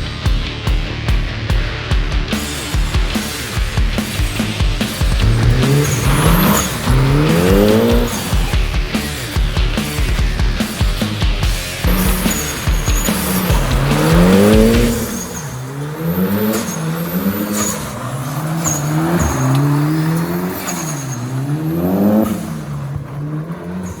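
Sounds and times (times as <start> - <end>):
car engine revving: 2.2 - 24.0.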